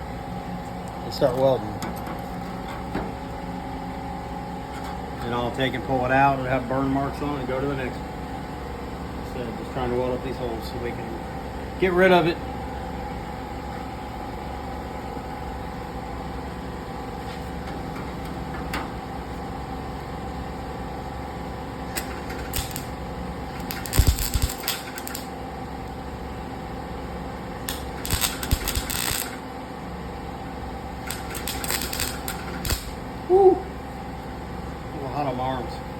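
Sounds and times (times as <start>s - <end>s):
steady hum: 0.0s - 35.9s
welder crackling: 21.9s - 25.3s, 27.7s - 29.4s, 31.0s - 33.0s.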